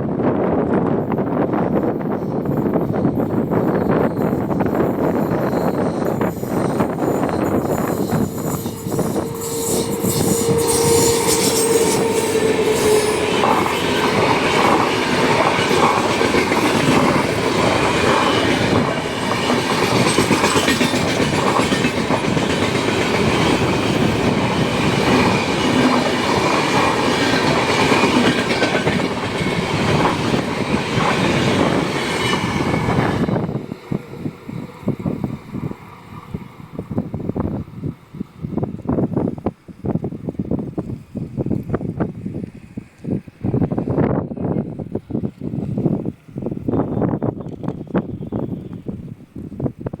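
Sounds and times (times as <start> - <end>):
train wheels clattering: 0.8 - 37.1.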